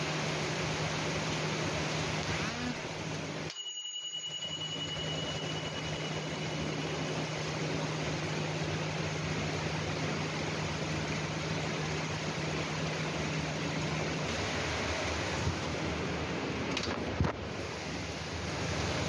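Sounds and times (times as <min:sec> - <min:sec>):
heavy rain hissing: 0:00.0 - 0:03.4, 0:06.1 - 0:16.6, 0:17.4 - 0:19.0
faint high whistle tone: 0:03.5 - 0:07.2.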